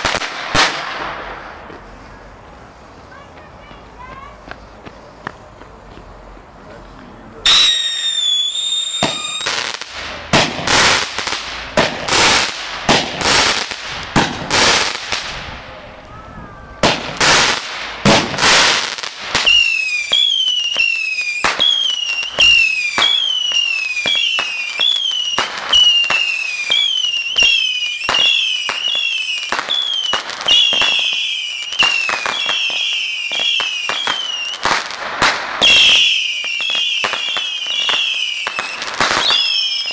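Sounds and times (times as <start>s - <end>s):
firework pops: 0.0s - 2.0s, 3.2s - 6.2s, 7.5s - 15.5s, 16.8s - 39.9s
firework whistles: 0.0s - 5.2s, 7.4s - 39.9s
firework bangs and crackling: 0.0s - 39.9s.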